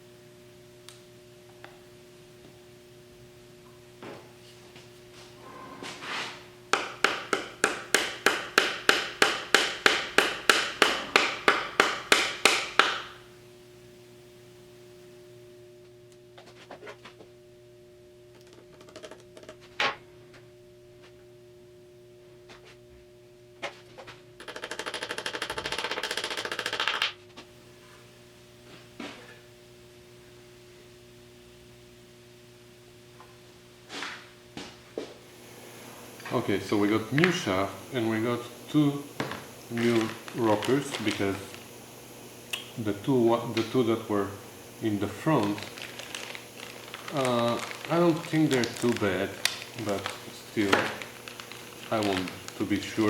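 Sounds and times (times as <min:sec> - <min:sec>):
faint steady hum: 0:00.0 - 0:53.0
hammer tapping: 0:06.7 - 0:13.1.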